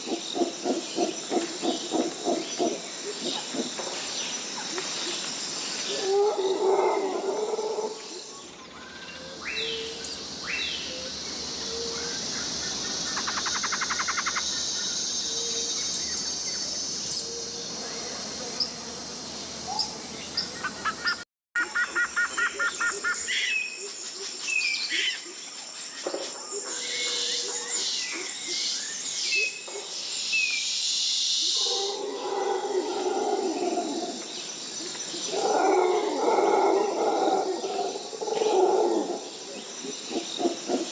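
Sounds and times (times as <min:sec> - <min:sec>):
insects buzzing: 0:00.0 - 0:21.2
birds chirping and calling: 0:08.7 - 0:18.8, 0:19.6 - 0:23.8.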